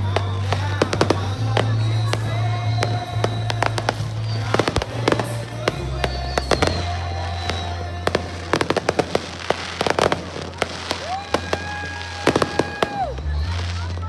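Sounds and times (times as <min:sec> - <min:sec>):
fireworks popping and banging: 0:00.0 - 0:14.0
music with bass notes: 0:00.0 - 0:14.0.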